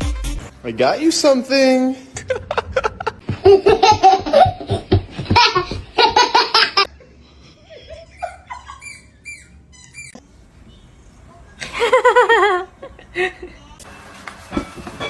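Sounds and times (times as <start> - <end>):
person laughing hard: 2.2 - 6.9, 7.5 - 9.2.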